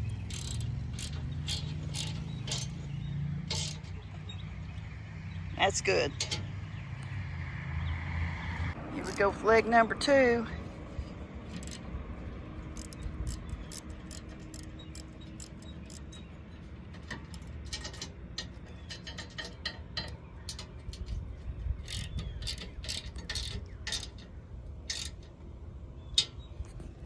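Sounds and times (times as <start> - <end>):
metallic clicks of bolts and wrench: 0.0 - 4.2, 6.1 - 6.5, 9.0 - 9.2, 11.0 - 11.8, 12.7 - 25.4.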